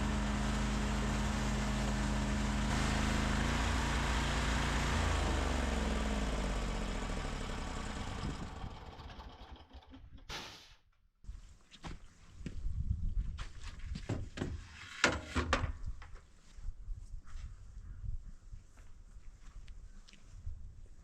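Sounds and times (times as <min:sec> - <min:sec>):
machine motor humming: 0:00.0 - 0:08.6.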